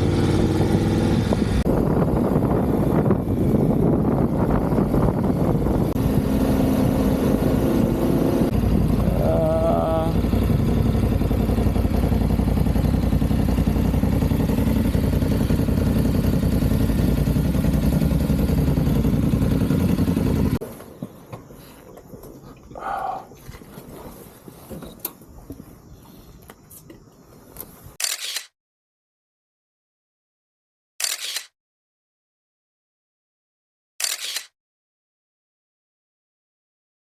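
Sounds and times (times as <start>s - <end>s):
wind rushing: 0.0s - 9.2s
motorcycle engine running: 0.0s - 20.6s.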